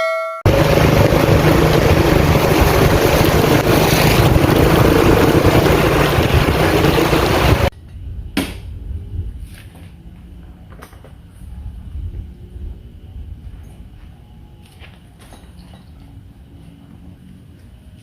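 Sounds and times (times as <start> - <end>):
heavy rain pouring: 0.5 - 7.7.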